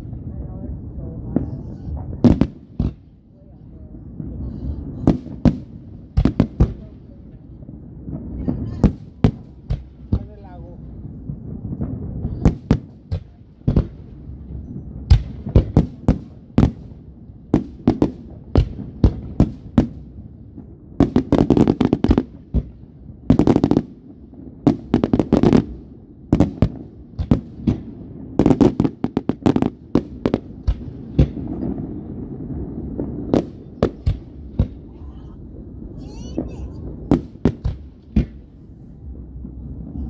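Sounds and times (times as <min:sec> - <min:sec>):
low rumble: 0:00.0 - 0:02.5, 0:31.0 - 0:40.0
fireworks bangs: 0:00.0 - 0:40.0.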